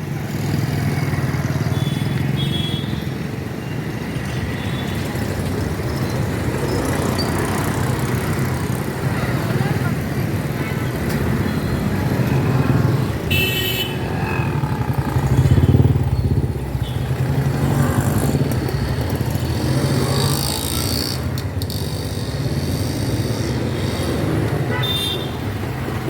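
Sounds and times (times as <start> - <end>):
motorcycle engines running: 0.0 - 26.0
road traffic: 0.0 - 26.0.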